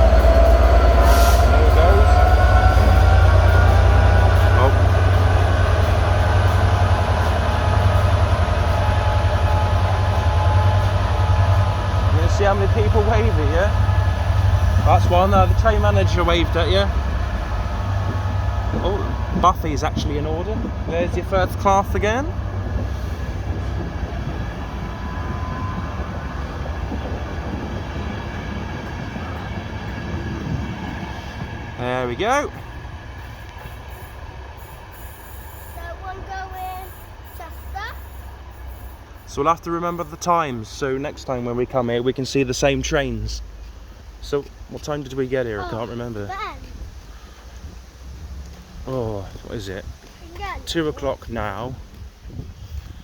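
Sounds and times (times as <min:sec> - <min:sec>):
diesel train passing: 0:00.0 - 0:53.0.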